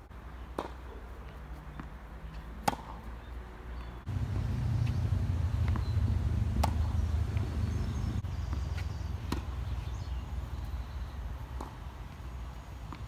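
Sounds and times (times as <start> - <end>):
low rumble: 4.1 - 9.3
ball bouncing: 4.1 - 9.6
racquet hitting tennis ball: 4.1 - 10.3.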